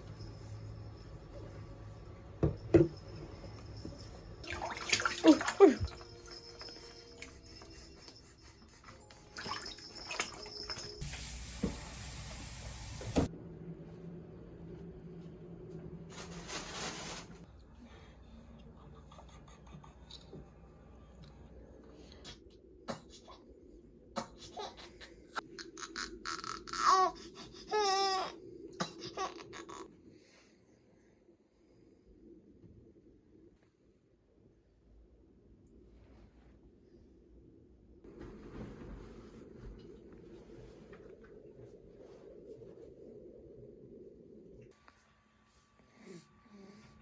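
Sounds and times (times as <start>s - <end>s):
water running: 2.4s - 13.3s
baby crying: 25.7s - 29.9s.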